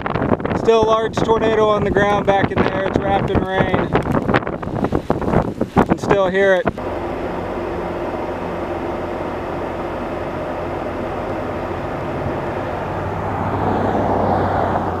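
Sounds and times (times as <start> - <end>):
wind and rain roaring: 0.0 - 15.0
low hum: 6.6 - 15.0.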